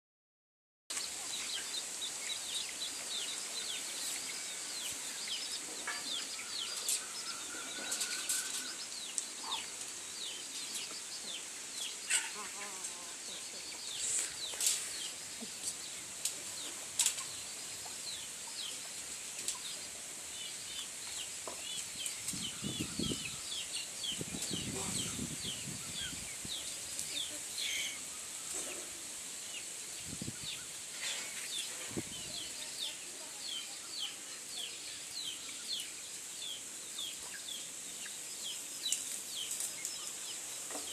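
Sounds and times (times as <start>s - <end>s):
steady high-pitched hiss: 0.9s - 40.9s
chicks peeping: 13.2s - 40.9s.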